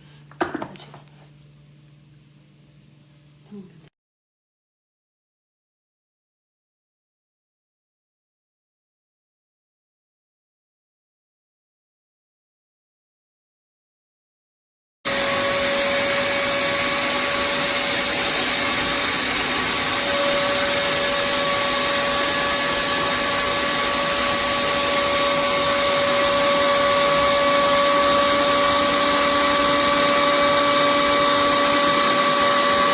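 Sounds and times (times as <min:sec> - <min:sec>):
suction motor whining: 0:15.1 - 0:32.9.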